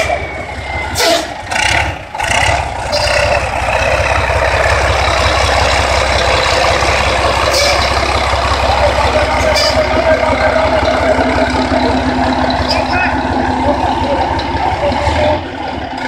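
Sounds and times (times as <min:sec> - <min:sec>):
heavy truck engine rumbling: 0:00.0 - 0:16.0.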